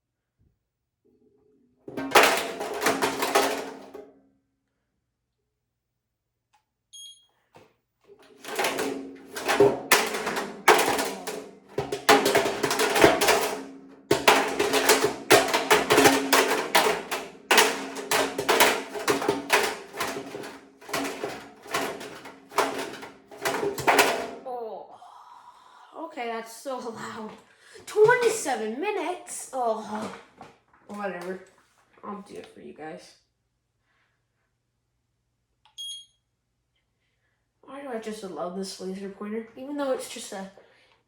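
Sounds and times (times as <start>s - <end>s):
calculator clattering in washer drum: 1.9s - 4.0s, 8.1s - 24.4s.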